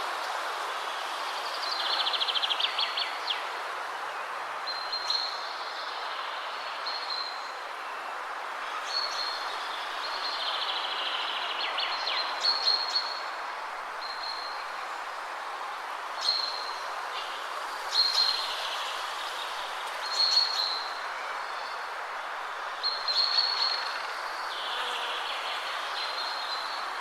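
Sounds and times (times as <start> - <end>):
wind rushing through trees: 0.0 - 27.0
small birds singing: 16.2 - 22.0.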